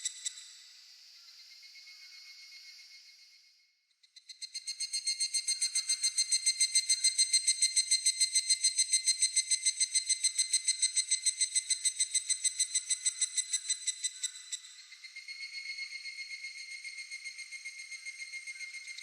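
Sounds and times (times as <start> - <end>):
cicada calling in ringing pulses: 4.2 - 19.0.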